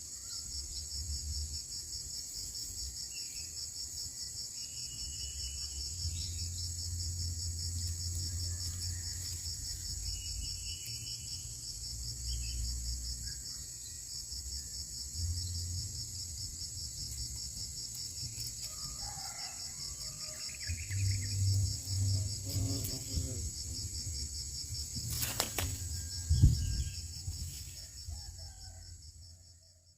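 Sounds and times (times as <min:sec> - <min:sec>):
insect chorus trilling: 0:00.0 - 0:29.9.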